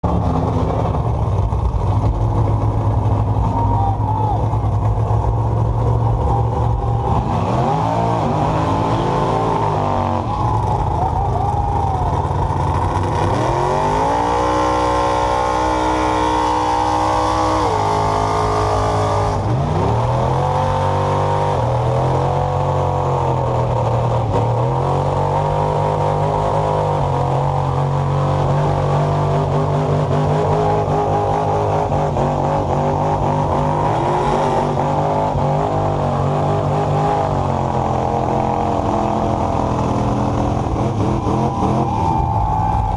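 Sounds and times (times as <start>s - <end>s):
truck engine revving hard: 0.0s - 42.9s.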